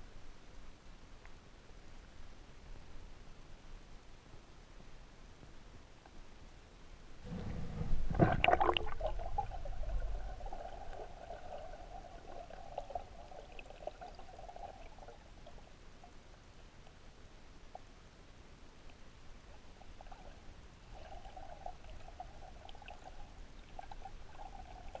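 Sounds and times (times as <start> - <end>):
water bubbling: 7.2 - 15.8, 19.8 - 25.0
water splashing and gurgling: 7.3 - 15.7.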